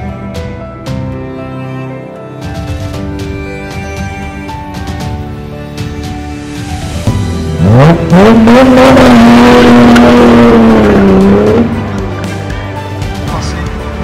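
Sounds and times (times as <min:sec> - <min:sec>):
sports car engine revving: 0:07.1 - 0:12.0.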